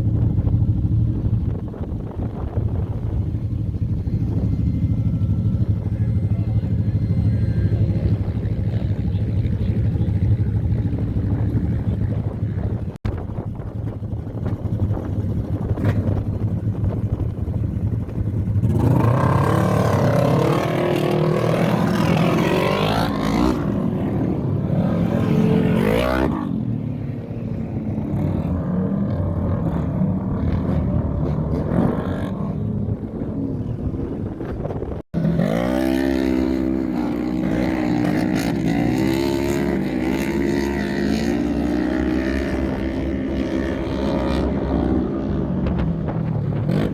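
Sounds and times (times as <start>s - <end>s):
wind rumbling on microphone: 0.0s - 46.9s
race engines revving: 18.4s - 46.9s.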